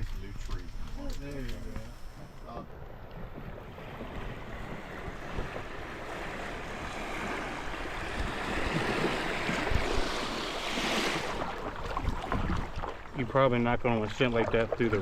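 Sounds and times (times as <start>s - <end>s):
rushing river water: 3.5s - 15.0s.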